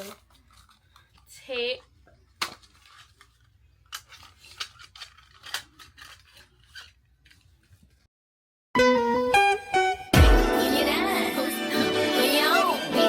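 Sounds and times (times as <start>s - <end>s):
wrapping paper crinkling: 0.0s - 1.3s, 2.6s - 8.0s
scissors snipping paper: 4.0s - 7.0s.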